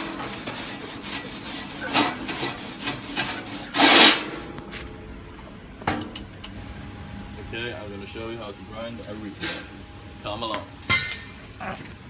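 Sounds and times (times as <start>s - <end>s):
wire brush scrubbing metal: 0.0s - 4.4s.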